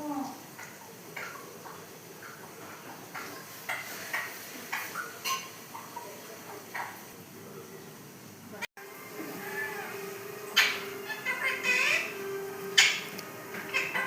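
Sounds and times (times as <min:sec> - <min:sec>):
parrot call: 0:09.1 - 0:14.0.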